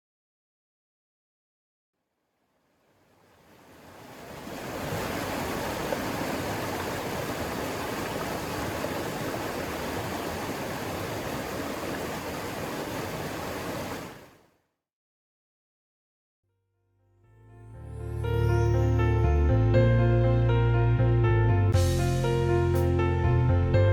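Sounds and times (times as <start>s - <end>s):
river water rushing: 3.0s - 14.4s.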